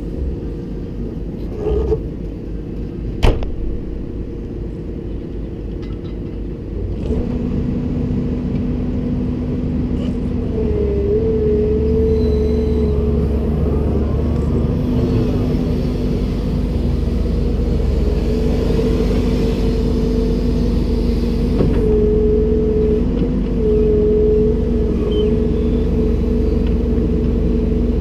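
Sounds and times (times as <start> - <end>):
steady whine: 0.0 - 6.8
excavator engine and hydraulics: 0.0 - 28.0.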